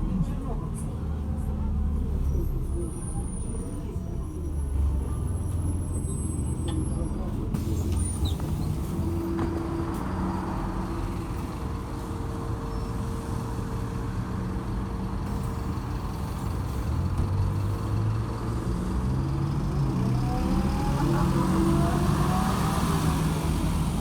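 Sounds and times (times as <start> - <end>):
bus engine rumbling: 0.0 - 24.0
road noise: 0.0 - 24.0.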